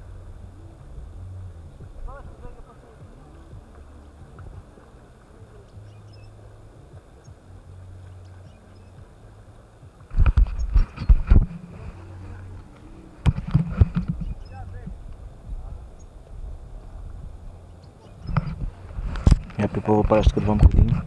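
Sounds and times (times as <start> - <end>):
bicycle rumbling on dirt track: 0.0 - 21.0
bike knocks and rattles: 13.2 - 14.9.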